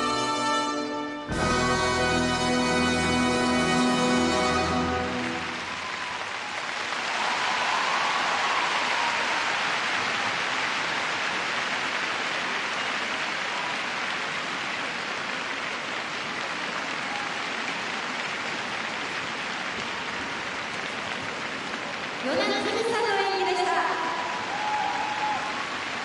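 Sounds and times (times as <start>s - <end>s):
music: 0.0s - 5.8s
crowd applauding: 1.5s - 26.0s.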